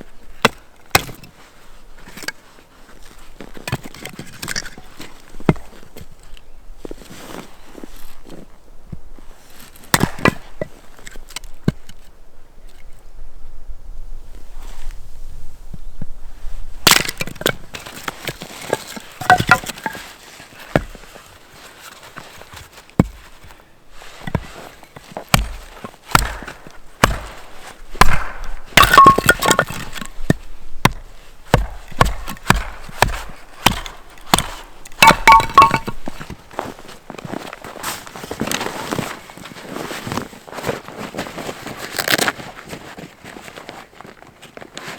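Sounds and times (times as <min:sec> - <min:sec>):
wood cracking and snapping: 0:16.8 - 0:20.0, 0:25.3 - 0:36.3.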